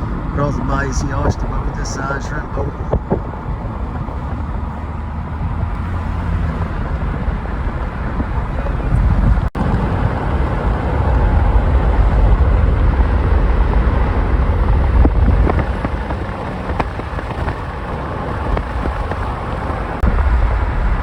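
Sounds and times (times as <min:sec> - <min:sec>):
vehicle rumbling: 0:00.0 - 0:21.0
wind buffeting microphone: 0:00.0 - 0:21.0.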